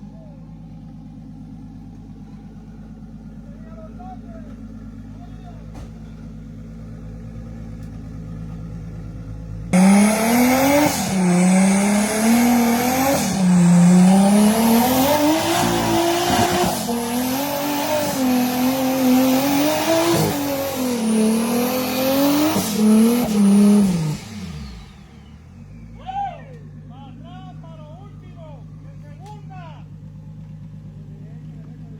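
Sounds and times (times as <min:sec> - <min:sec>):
engine revving hard: 0:09.7 - 0:25.8.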